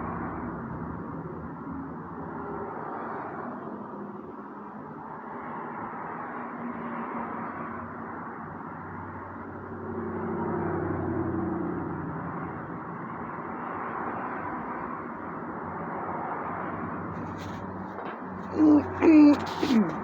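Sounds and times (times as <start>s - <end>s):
vehicle noise: 13.4s - 20.0s.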